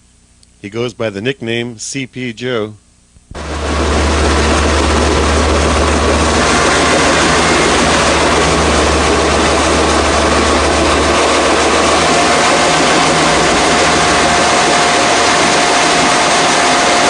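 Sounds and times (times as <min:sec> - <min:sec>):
heavy engine running: 0:03.4 - 0:17.0.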